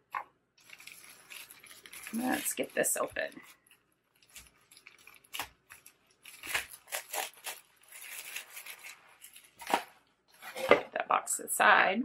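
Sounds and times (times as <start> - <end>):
plastic wrapping crinkling: 0.1 - 10.7.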